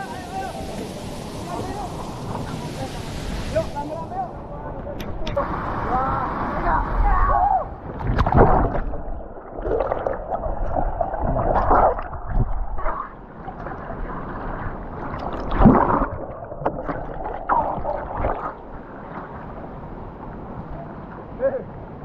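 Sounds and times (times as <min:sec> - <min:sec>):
water sloshing and splashing: 0:07.8 - 0:20.6.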